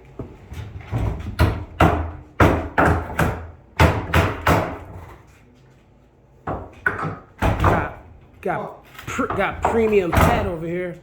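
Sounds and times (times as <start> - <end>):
hammer striking wood: 1.1 - 5.0, 6.5 - 8.0.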